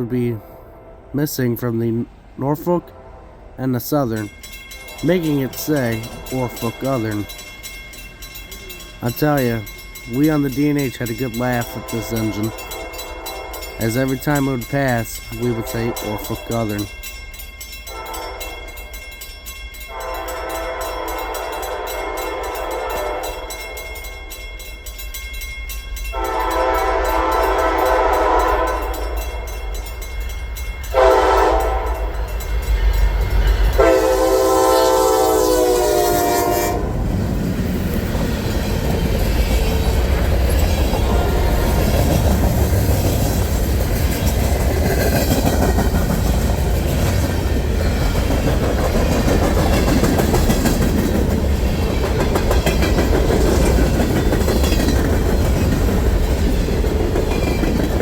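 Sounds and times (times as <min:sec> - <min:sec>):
train air horn blasts: 0:00.0 - 0:01.3, 0:02.8 - 0:03.6, 0:11.7 - 0:13.8, 0:17.9 - 0:18.6, 0:19.9 - 0:23.6, 0:26.2 - 0:29.1, 0:30.9 - 0:32.2, 0:33.7 - 0:37.0
locomotives rumbling: 0:36.8 - 0:58.0
wheels clattering over rail joints: 0:36.9 - 0:58.0.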